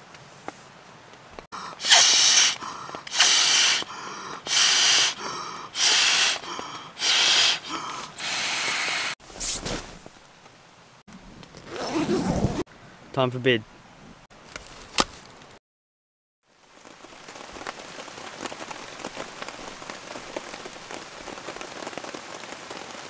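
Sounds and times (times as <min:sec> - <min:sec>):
person blowing out breaths: 0:01.5 - 0:09.2
short rustle: 0:09.2 - 0:10.3.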